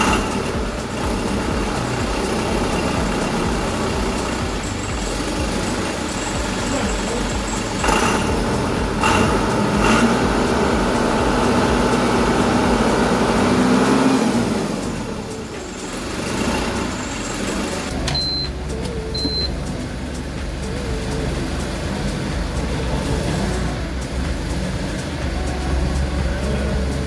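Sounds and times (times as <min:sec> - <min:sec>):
diesel farm machinery engine: 0:00.0 - 0:27.0
short high peeps: 0:15.2 - 0:20.2.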